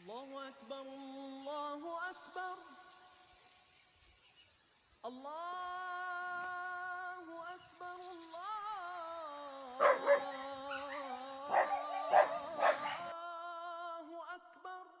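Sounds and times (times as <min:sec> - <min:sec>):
call to prayer over loudspeaker: 0:05.0 - 0:15.0
dog barking: 0:09.8 - 0:13.1.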